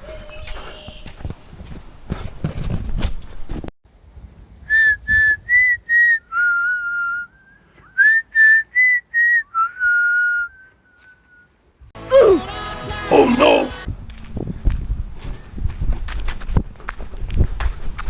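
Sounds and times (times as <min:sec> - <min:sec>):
rustling or footsteps: 0:00.0 - 0:03.7, 0:13.9 - 0:18.0
person whistling a tune: 0:04.7 - 0:11.5.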